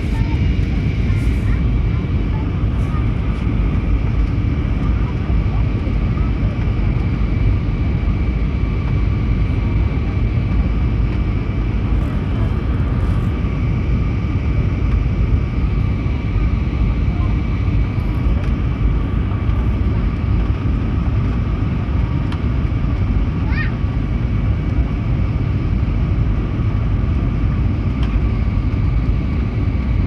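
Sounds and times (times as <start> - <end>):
thin steady whine: 0.0 - 23.3
aircraft cabin engine rumble: 0.0 - 30.0.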